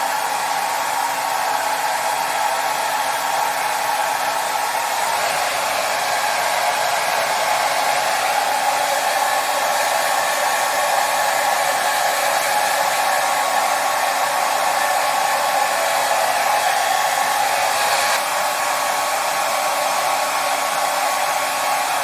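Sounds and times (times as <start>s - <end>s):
hair dryer blowing: 0.0s - 22.0s.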